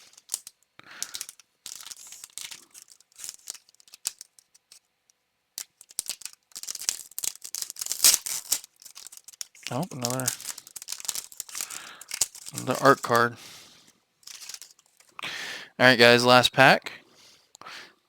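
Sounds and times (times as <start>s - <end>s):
trading cards flipping and rustling: 0.0s - 4.9s, 5.6s - 13.6s, 14.2s - 15.2s.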